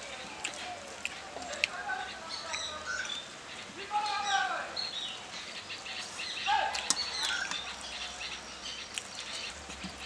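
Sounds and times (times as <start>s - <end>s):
high bird chirps: 4.0s - 9.6s.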